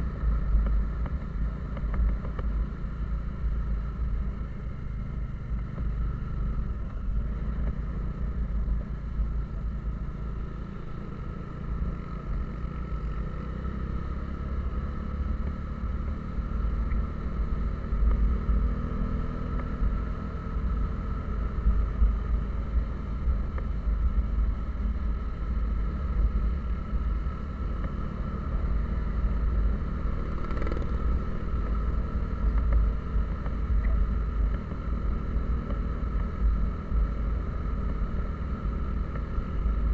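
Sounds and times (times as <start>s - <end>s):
road and wind rumble: 0.0s - 39.9s
vehicle engine drone: 0.0s - 39.9s.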